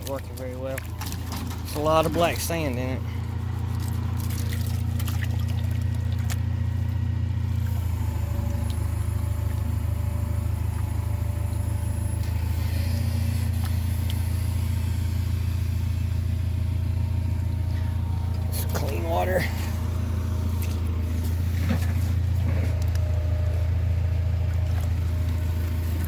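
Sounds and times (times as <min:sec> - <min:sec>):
water sloshing in a pan: 0:00.0 - 0:07.6, 0:24.3 - 0:26.0
steady low rumble: 0:00.0 - 0:26.0.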